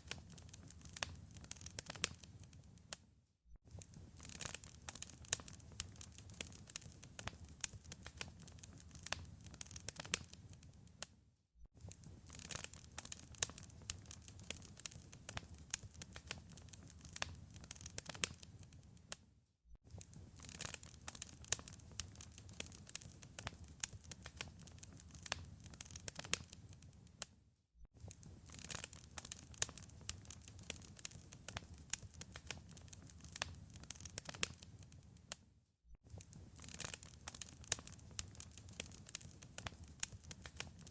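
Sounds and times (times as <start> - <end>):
wood fire pops and snaps: 0.0 - 2.6, 3.7 - 10.7, 11.8 - 18.7, 19.9 - 27.3, 28.0 - 35.4, 36.1 - 40.9.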